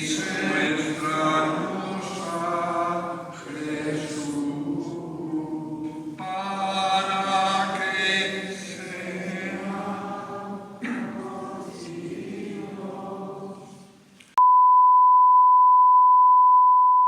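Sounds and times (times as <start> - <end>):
voices singing a hymn: 0.0 - 14.0
high-pitched electronic beep tone: 14.4 - 17.0.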